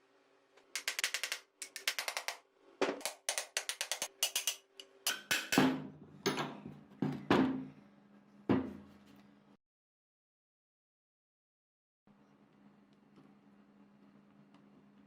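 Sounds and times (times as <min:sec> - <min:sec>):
scattered taps: 0:00.8 - 0:04.6.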